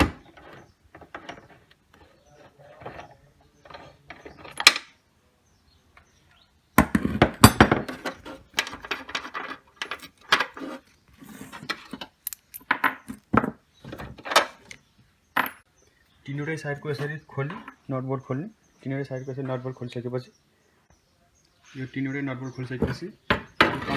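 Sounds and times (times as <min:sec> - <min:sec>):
metal tools clinking: 0:11.6 - 0:13.1.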